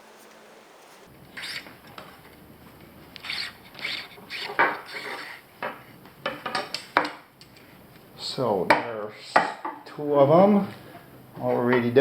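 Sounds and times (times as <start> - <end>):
tent poles scraping and rubbing: 0.0 - 6.0.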